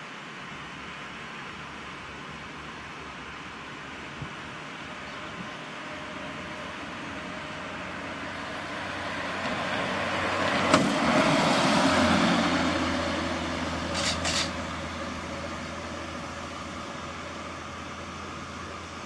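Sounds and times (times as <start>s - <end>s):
truck driving past: 4.6s - 19.0s.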